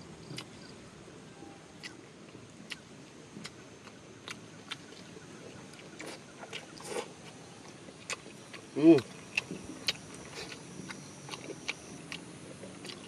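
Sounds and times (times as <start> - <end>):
low background hiss: 0.0 - 13.0
wet chewing mouth clicks: 3.4 - 13.0.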